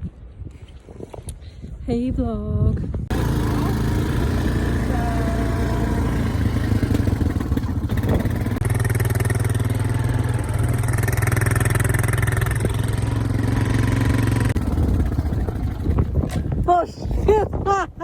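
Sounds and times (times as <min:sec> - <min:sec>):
vehicle engine running: 0:03.1 - 0:16.6.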